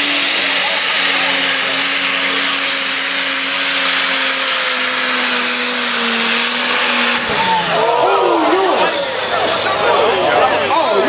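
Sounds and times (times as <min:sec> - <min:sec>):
hissing rush: 0:00.0 - 0:10.9
engine droning under load: 0:00.0 - 0:11.0.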